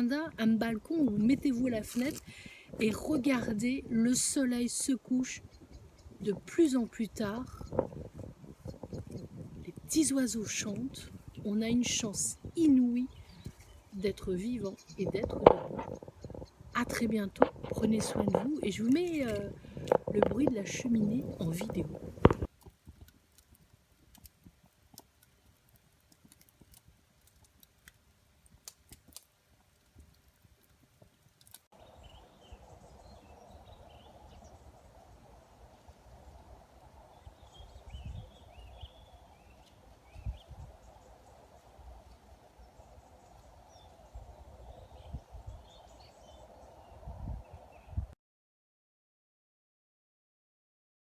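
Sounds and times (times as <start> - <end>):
small birds chirping: 0.0 - 22.6, 31.8 - 48.1
wood fire crackling: 0.0 - 46.6
dull low thumps: 7.3 - 10.0, 14.9 - 22.5
steady low hiss: 31.2 - 48.1.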